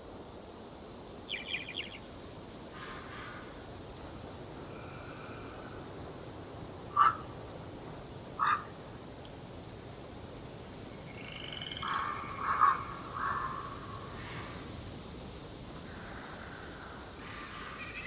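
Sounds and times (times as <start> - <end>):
steady background hiss: 0.0 - 18.0
higher bird trilling: 1.3 - 2.0, 6.9 - 7.3, 8.4 - 8.7, 11.2 - 13.8
harsh croaking bird calls: 1.3 - 2.1, 2.7 - 3.7, 6.9 - 7.4, 8.4 - 8.8, 11.0 - 14.6, 15.8 - 18.0.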